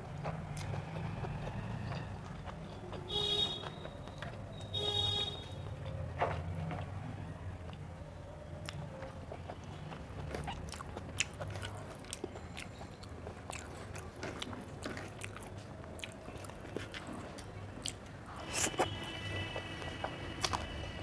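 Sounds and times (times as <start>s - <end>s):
person chewing food: 0.0s - 4.6s, 8.5s - 20.9s
wet mouth clicks: 17.9s - 19.0s.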